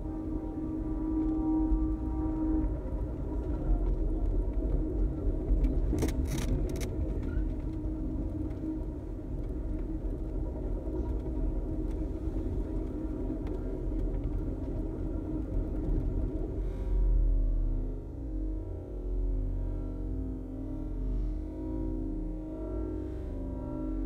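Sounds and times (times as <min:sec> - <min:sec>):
constant hum: 0:00.0 - 0:24.0
train rumble inside coach: 0:00.0 - 0:24.0.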